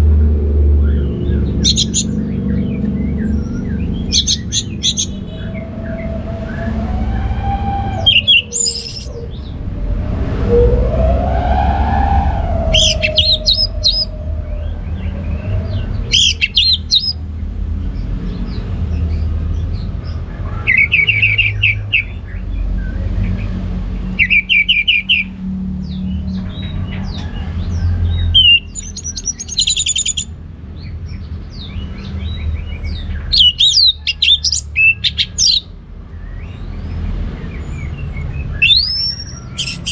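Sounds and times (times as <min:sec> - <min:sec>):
low rumble: 0:00.0 - 0:18.2
thrush singing: 0:01.0 - 0:17.2
low gliding tone: 0:02.1 - 0:16.2.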